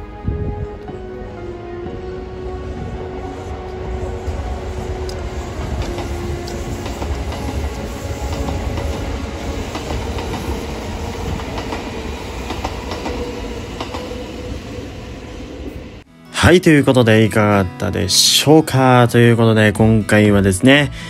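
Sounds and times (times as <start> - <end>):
electric train rumbling past: 0.0 - 16.1.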